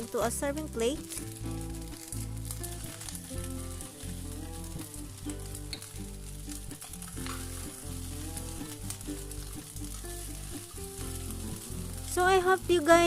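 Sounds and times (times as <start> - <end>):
background music with bass: 0.0 - 13.0
rice sizzling in hot pan: 0.0 - 13.0.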